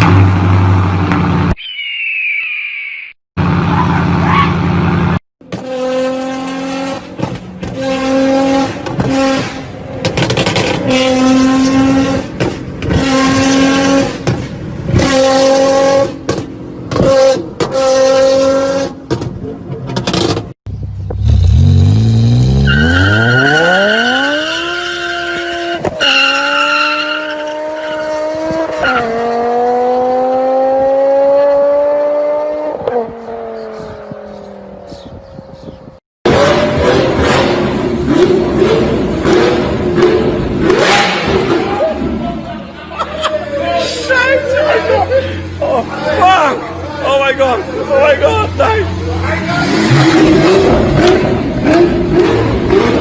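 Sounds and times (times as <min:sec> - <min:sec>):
car engine revving: 0:03.4 - 0:19.0, 0:20.0 - 0:34.5, 0:36.3 - 0:42.4, 0:45.4 - 0:53.0
car accelerating hard: 0:21.2 - 0:34.5, 0:36.3 - 0:42.2, 0:47.6 - 0:53.0.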